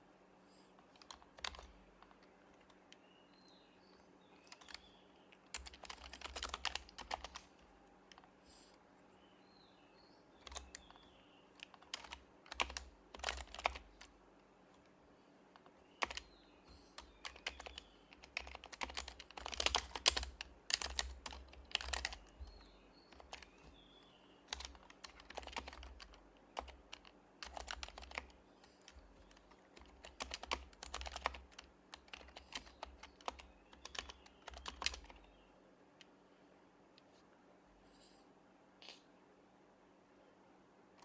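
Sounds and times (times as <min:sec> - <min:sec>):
typing on a keyboard: 0:00.9 - 0:03.0, 0:04.4 - 0:08.3, 0:10.4 - 0:11.0, 0:11.6 - 0:14.1, 0:15.6 - 0:16.3, 0:16.9 - 0:23.7, 0:24.5 - 0:35.3.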